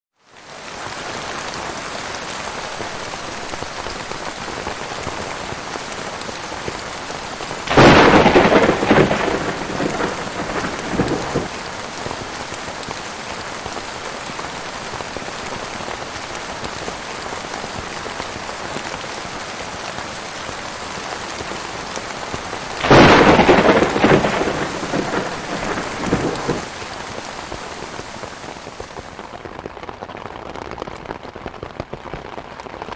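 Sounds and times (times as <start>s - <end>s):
heavy rain: 0.2s - 32.9s
thunder claps rumbling: 7.7s - 11.6s, 22.8s - 29.0s.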